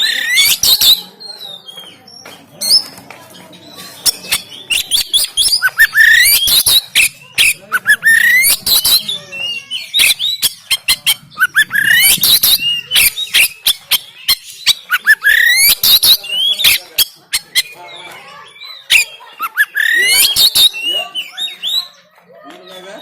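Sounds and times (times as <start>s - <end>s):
bird singing: 0.0s - 22.1s.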